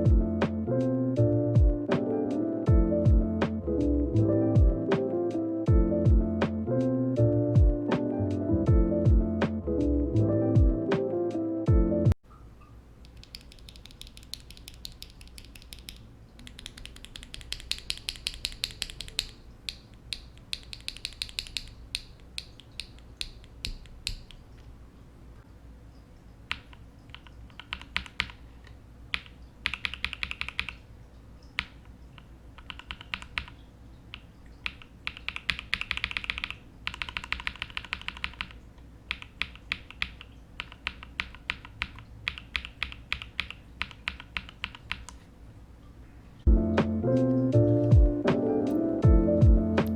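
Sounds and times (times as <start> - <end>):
mechanical keyboard typing: 13.1 - 24.4, 26.5 - 28.4, 29.1 - 30.8, 31.6 - 45.2.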